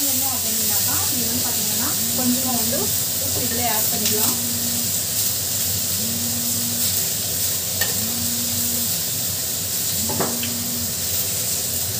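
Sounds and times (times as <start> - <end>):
food sizzling in oil: 0.0 - 11.9
low pulsing hum: 1.1 - 5.2, 5.8 - 7.2, 7.8 - 9.1, 10.0 - 11.1.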